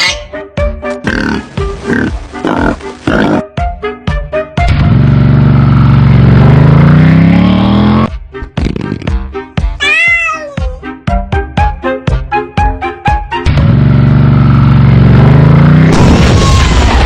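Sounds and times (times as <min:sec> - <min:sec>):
cat meowing: 0:09.8 - 0:10.8.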